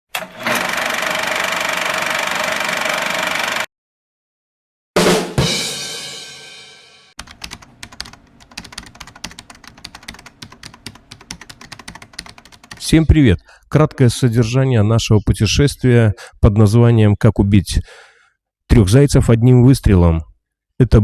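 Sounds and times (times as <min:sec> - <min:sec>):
rapid clicks: 0:07.2 - 0:12.9.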